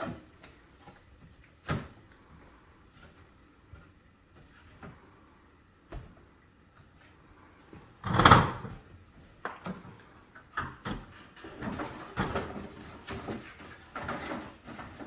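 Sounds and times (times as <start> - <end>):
oven vent knocking and scraping: 8.0 - 8.9, 10.5 - 15.0
rustling scrapes: 11.2 - 15.0.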